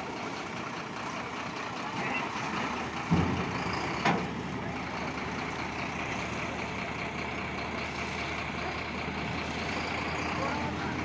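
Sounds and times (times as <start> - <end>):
heavy vehicle engine running: 0.0 - 11.0
thump: 3.1 - 4.2.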